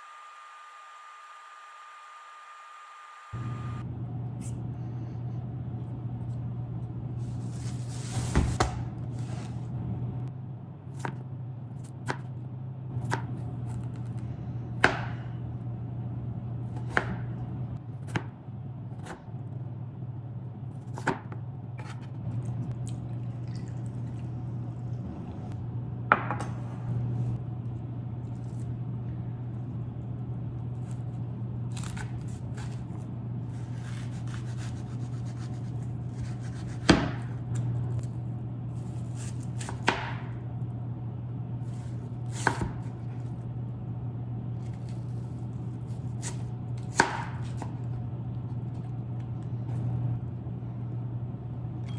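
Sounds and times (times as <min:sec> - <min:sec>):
steady low hum: 0:03.3 - 0:51.9
knife chopping on cutting board: 0:14.8 - 0:15.3, 0:16.8 - 0:17.3, 0:31.7 - 0:32.9, 0:33.5 - 0:37.4, 0:39.0 - 0:40.4, 0:41.7 - 0:43.0, 0:45.9 - 0:47.8.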